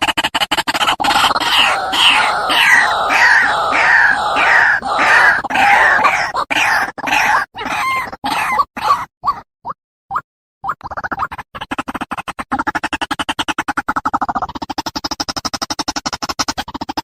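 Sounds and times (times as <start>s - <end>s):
waterhen harsh croaking call: 1.0s - 8.6s.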